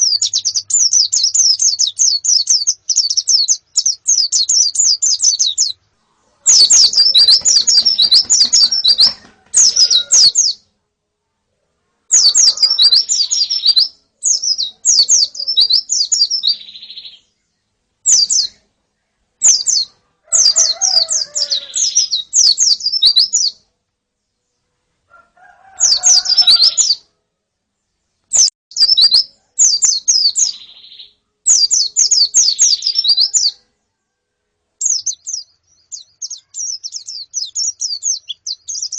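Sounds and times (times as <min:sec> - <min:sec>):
birds high thin chirps: 0:00.0 - 0:10.7, 0:12.1 - 0:18.7, 0:19.4 - 0:23.7, 0:24.3 - 0:27.1, 0:28.1 - 0:33.8, 0:34.8 - 0:38.9.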